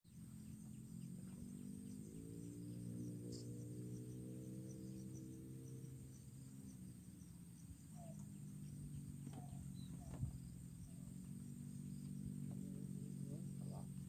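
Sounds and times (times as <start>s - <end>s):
faint chirps: 0.1s - 14.0s
steady low hum: 0.1s - 14.0s.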